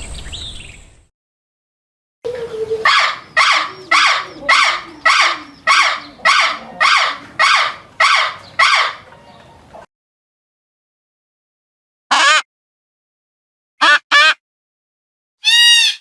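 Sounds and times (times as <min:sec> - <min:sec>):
bird harsh calls: 0:02.3 - 0:09.8, 0:15.4 - 0:16.0.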